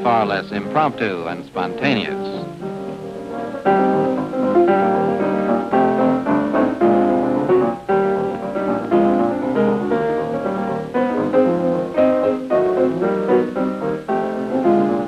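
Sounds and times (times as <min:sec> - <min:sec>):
lively piano music: 0:00.0 - 0:15.0.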